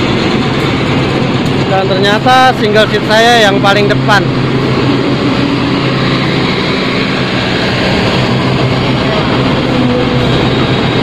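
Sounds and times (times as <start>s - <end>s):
diesel train engine drone: 0.0s - 11.0s
train wheels running noise: 0.0s - 11.0s.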